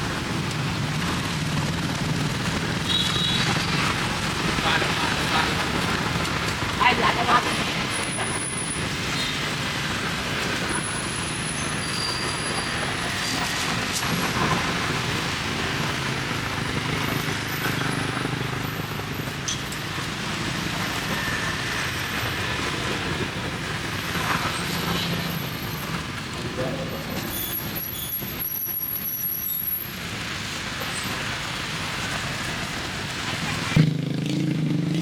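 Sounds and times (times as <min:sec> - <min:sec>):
street traffic: 0:00.0 - 0:35.0.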